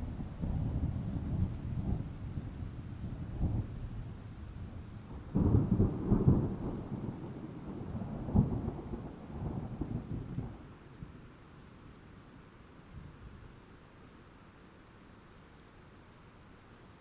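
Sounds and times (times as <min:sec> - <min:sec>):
thunder rumbling: 0:00.0 - 0:10.4
steady rain: 0:00.0 - 0:17.0.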